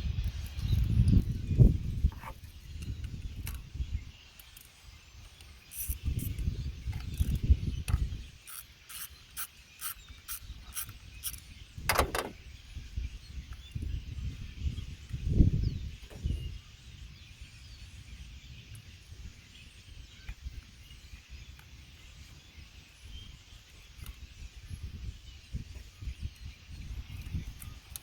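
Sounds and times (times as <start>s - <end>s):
ratchet wrench clicking: 5.7s - 6.4s, 7.0s - 11.4s
handling knocks: 11.9s - 12.4s
sharp metal clunk: 11.9s - 12.4s.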